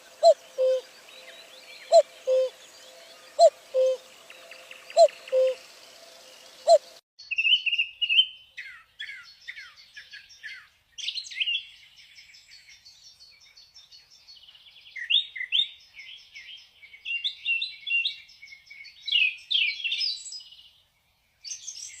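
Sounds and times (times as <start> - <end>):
birds chirping and whistling: 0.0 - 9.8.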